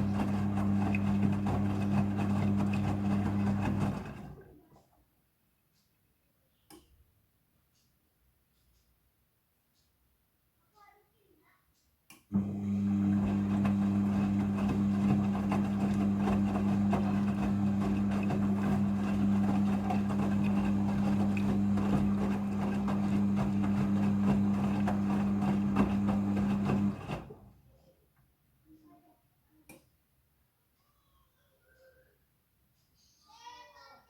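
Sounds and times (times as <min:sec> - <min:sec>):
washing machine hum: 0:00.0 - 0:04.9, 0:12.3 - 0:27.7.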